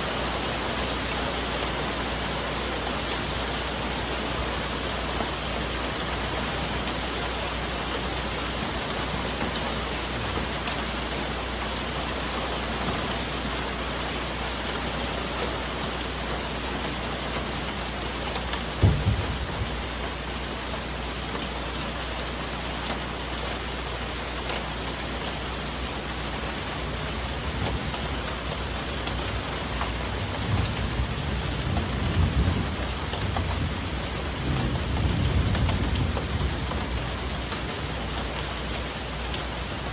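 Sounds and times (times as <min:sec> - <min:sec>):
rain on foliage: 0:00.0 - 0:39.9
thunder rumble: 0:18.7 - 0:20.4, 0:27.2 - 0:38.4
sharp thump: 0:18.8 - 0:19.8.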